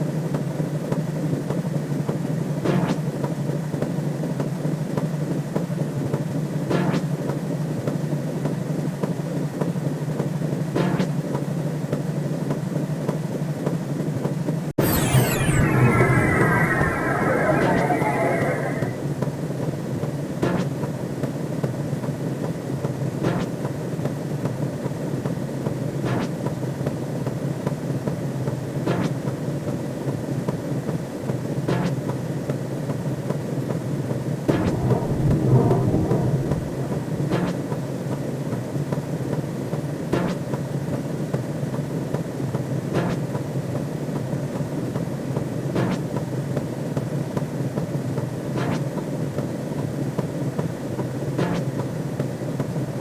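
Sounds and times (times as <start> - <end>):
hissing swoosh: 14.8 - 19.1, 34.5 - 38.0
low rumbling synthetic drone: 14.8 - 19.2, 34.5 - 38.3
synthetic sweep: 14.8 - 19.2, 34.4 - 38.2.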